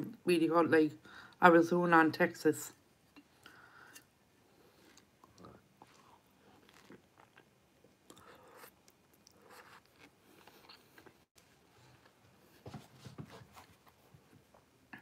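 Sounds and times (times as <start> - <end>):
person chewing noodles: 3.2 - 12.2.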